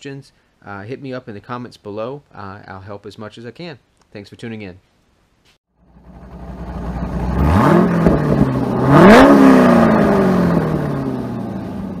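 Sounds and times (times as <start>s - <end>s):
car engine idling and revving: 5.8s - 12.0s.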